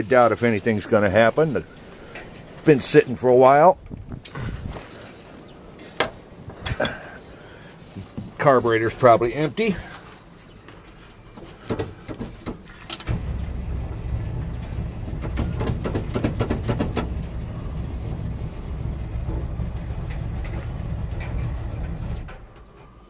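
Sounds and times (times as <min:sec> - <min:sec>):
starter motor cranking engine: 0:13.0 - 0:22.5
clicks and knocks: 0:14.3 - 0:17.4.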